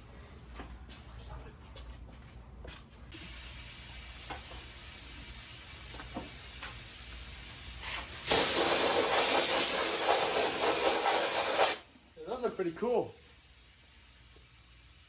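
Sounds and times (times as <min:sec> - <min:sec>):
compressed air blow gun hissing: 0:03.2 - 0:15.0.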